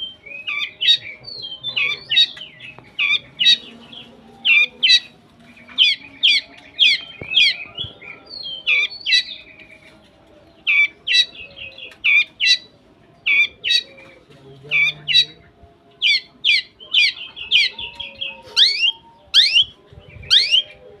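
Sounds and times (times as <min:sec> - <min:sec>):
shrike harsh calls: 0:18.4 - 0:19.7.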